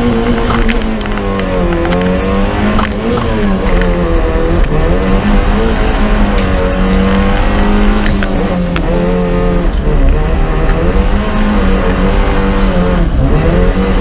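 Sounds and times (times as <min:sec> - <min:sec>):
sharp clicks and knocks: 0:00.0 - 0:12.6
car engine revving in cabin: 0:00.0 - 0:14.0.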